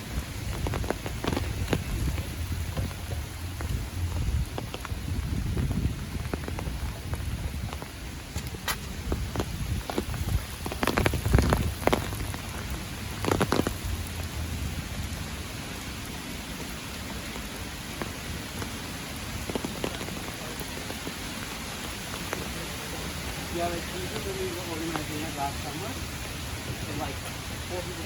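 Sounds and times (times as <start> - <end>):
light rain falling: 0.0 - 28.0
thumps with low rumble: 0.4 - 14.8.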